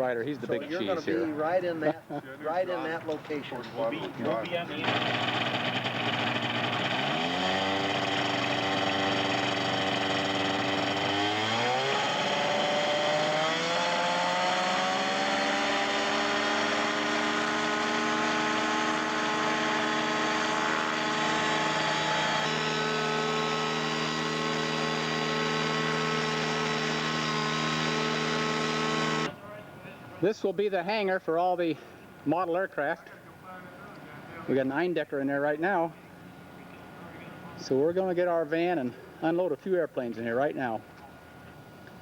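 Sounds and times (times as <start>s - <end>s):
engine speeding up: 4.8s - 29.3s.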